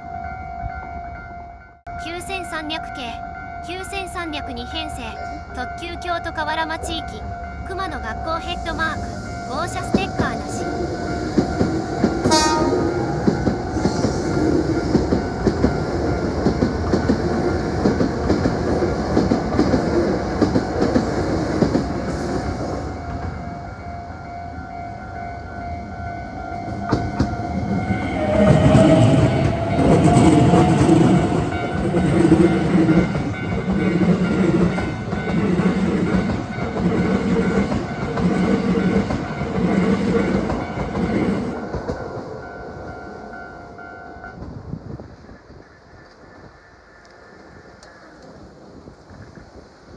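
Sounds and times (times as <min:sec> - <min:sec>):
electric train rumbling by: 0:00.0 - 0:49.9
train horn blast: 0:12.2 - 0:14.1, 0:27.6 - 0:31.8.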